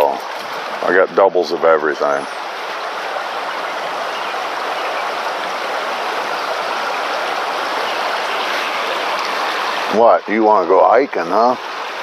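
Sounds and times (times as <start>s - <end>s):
creek water flowing: 0.0s - 12.0s.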